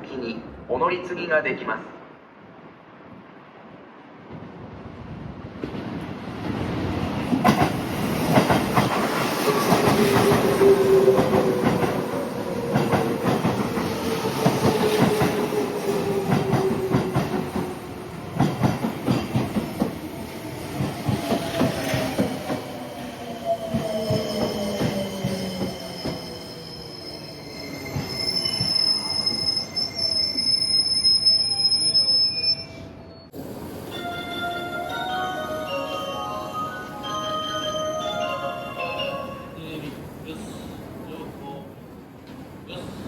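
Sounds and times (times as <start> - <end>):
train wheels clacking over rail joints: 18.4 - 19.9
high wheel squeal: 23.8 - 33.3.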